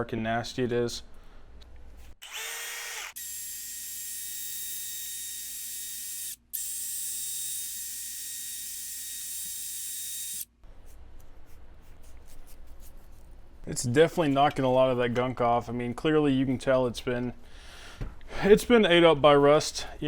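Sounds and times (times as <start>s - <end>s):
motor whine: 2.2s - 10.4s.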